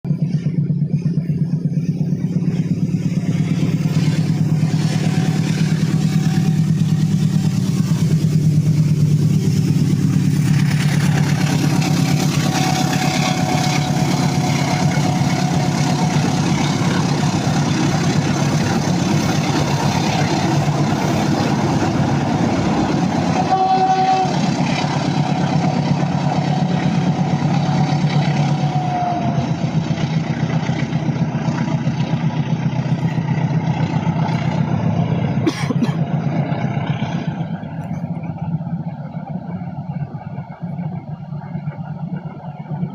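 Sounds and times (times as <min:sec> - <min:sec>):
rough train rumble: 0:00.0 - 0:42.9
train running with low drone: 0:00.0 - 0:42.9.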